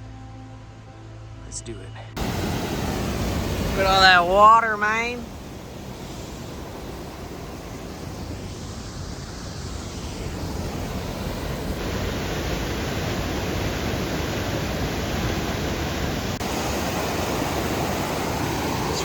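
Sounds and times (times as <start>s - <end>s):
mountain creek rushing: 2.2s - 19.0s.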